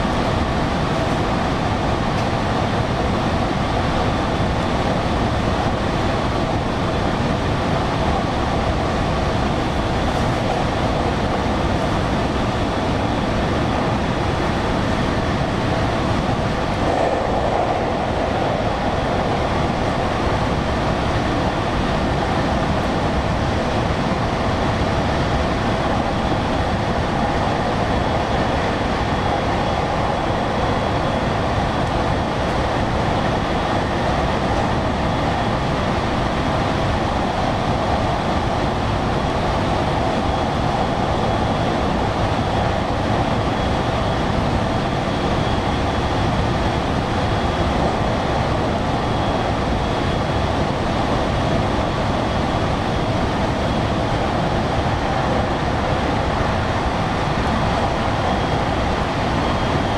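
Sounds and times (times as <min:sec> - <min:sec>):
train running rumble and hum: 0:00.0 - 0:59.9.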